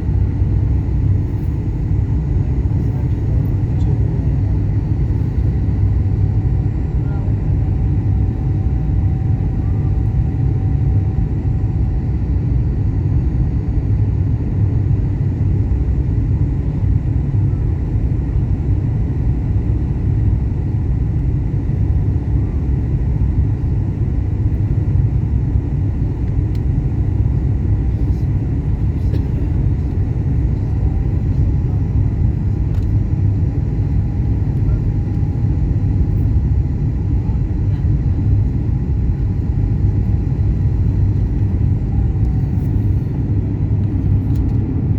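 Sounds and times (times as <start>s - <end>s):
airliner cabin rumble: 0.0s - 44.9s.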